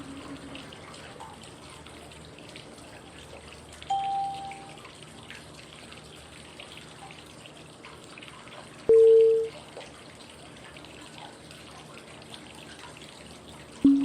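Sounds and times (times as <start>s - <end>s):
flowing water: 0.0s - 14.0s
water dripping: 0.0s - 14.0s
short low beep: 3.9s - 4.8s, 8.9s - 9.5s.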